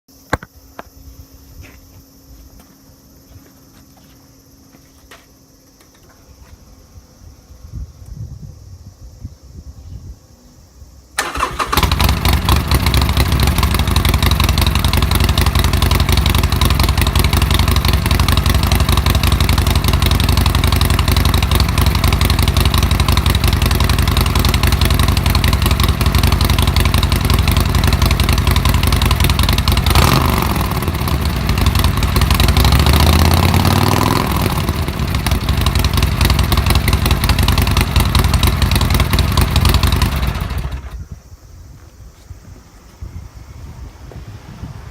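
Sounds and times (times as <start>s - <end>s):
motorcycle engine idling and revving: 11.2s - 41.0s.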